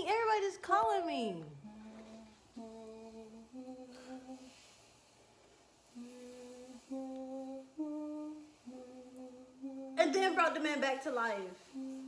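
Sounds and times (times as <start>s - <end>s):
person humming a slow melody: 1.6s - 4.6s, 5.9s - 10.0s, 11.6s - 12.0s.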